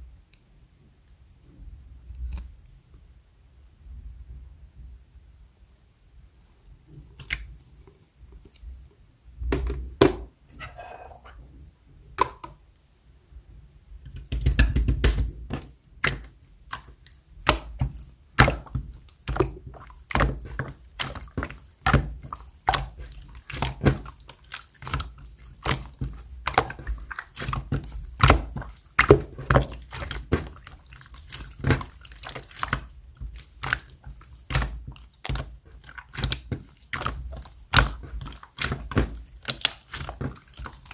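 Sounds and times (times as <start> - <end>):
slime squelching and popping: 7.2 - 7.6, 14.1 - 40.9.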